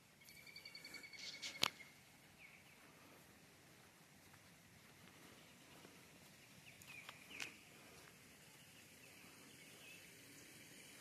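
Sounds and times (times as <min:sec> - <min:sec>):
high bird chirps: 0:00.2 - 0:02.7.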